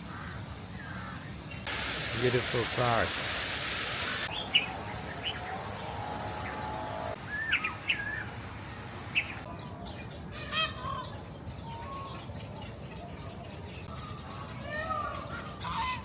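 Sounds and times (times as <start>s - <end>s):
loud bird call: 4.2s - 9.5s
birds chirping and whistling: 4.2s - 10.2s.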